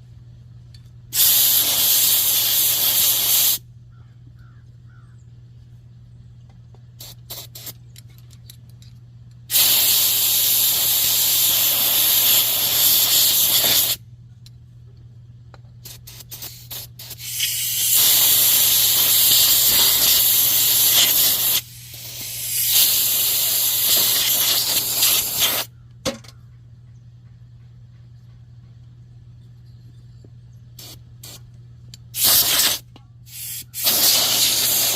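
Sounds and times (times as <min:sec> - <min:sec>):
aerosol can spraying: 0:01.2 - 0:03.6, 0:07.0 - 0:07.8, 0:09.5 - 0:14.0, 0:15.8 - 0:25.7, 0:32.2 - 0:34.9.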